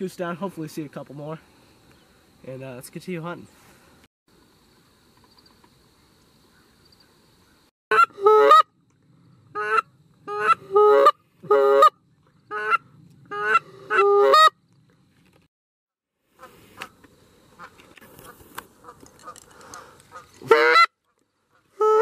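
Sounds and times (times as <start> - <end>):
goose honking: 7.9 - 8.7, 9.5 - 14.6, 18.8 - 20.9, 21.5 - 22.0.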